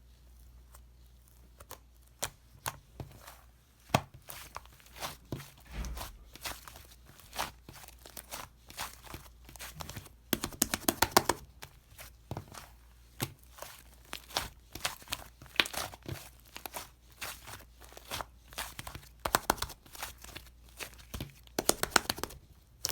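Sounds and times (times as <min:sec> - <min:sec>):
slime clicking and popping: 0:21.6 - 0:22.4.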